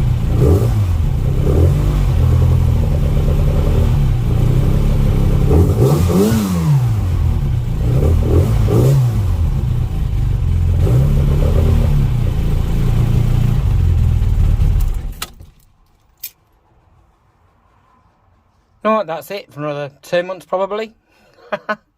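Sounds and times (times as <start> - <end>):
car engine revving: 0.0 - 15.2.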